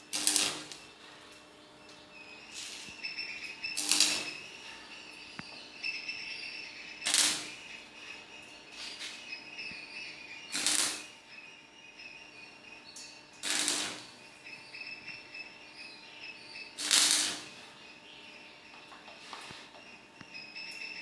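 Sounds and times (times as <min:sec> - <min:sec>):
arc welding crackling hiss: 0:00.0 - 0:04.8, 0:07.0 - 0:08.1, 0:08.7 - 0:09.3, 0:10.4 - 0:11.2, 0:13.3 - 0:14.3, 0:16.7 - 0:17.8.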